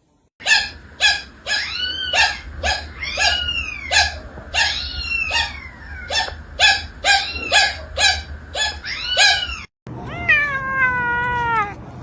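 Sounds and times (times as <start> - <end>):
cat meowing: 1.5 - 6.4, 7.0 - 7.8, 8.6 - 11.8.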